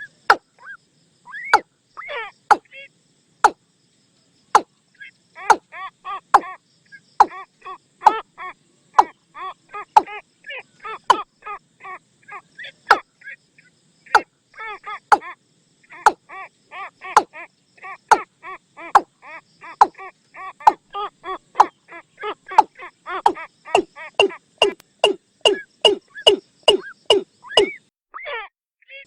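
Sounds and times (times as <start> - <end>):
hollow pitched bird call notes: 23.3 - 27.8
sharp loud clicking notes: 24.2 - 27.2.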